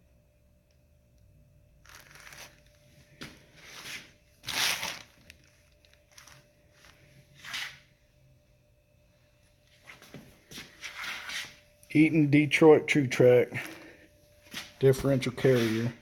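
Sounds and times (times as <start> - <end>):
packaging rustling and crinkling: 1.8 - 7.1.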